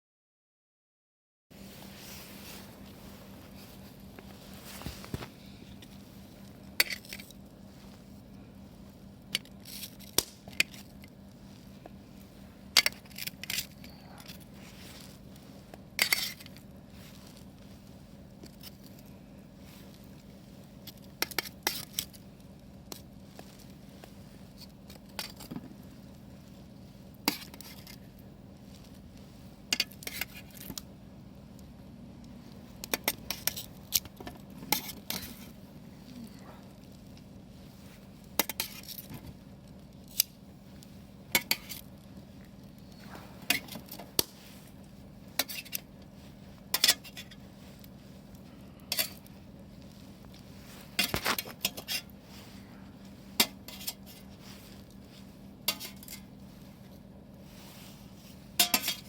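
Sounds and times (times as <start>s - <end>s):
faint steady hum: 1.5s - 59.0s
utensils clinking against dishes: 58.6s - 59.0s.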